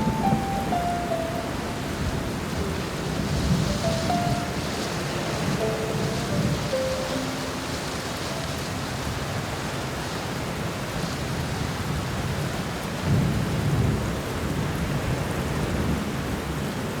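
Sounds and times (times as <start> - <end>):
thunder rumbling: 0.0 - 10.5
rain falling: 0.0 - 17.0.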